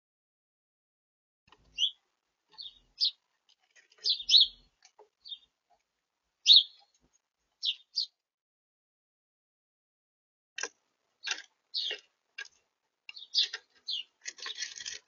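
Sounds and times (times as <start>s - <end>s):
songbirds chirping: 1.5s - 8.3s, 10.6s - 15.0s.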